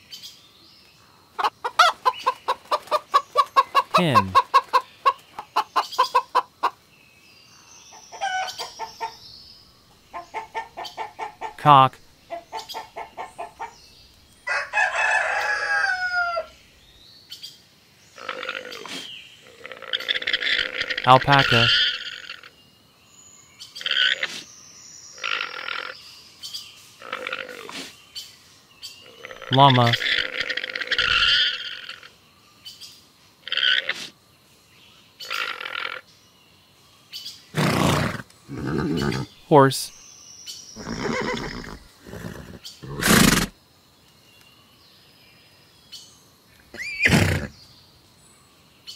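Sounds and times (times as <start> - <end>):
llama calling harshly: 3.6 - 4.8, 19.9 - 22.4, 29.3 - 32.0
rooster crowing: 14.4 - 16.6.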